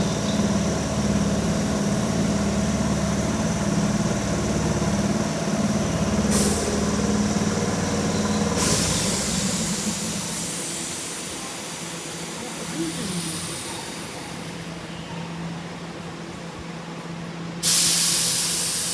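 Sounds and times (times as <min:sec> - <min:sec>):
electric train humming: 0:00.0 - 0:15.0
air brake hiss: 0:06.3 - 0:06.9, 0:08.5 - 0:11.4, 0:17.6 - 0:18.9.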